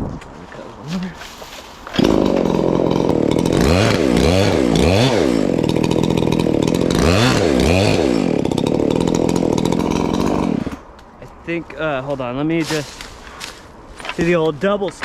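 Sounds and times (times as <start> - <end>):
chainsaw cutting wood: 1.8 - 10.9.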